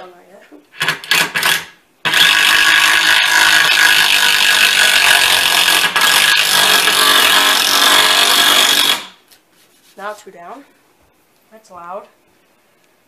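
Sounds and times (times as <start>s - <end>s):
power driver driving screw into wood: 0.8s - 9.2s.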